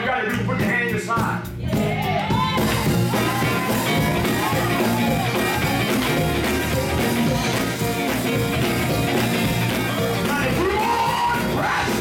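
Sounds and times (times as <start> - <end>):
band playing upbeat gospel music: 0.0 - 12.0
person preaching: 10.2 - 12.0.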